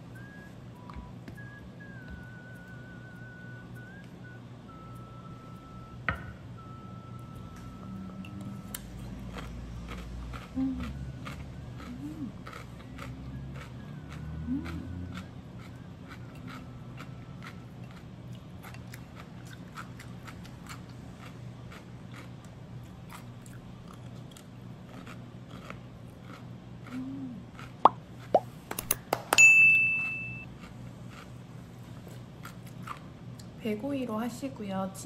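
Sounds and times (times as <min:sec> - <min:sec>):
person chewing crunchy pickle: 0:08.3 - 0:28.7, 0:30.5 - 0:33.5
bell ding: 0:29.4 - 0:30.4.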